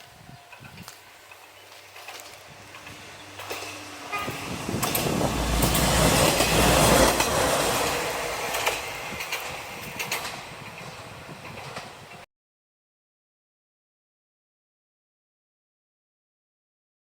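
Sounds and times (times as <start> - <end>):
diesel railcar engine rumble: 0.0 - 12.2
wheels clacking over rail joints: 0.4 - 12.2
train horn toot: 4.0 - 6.2.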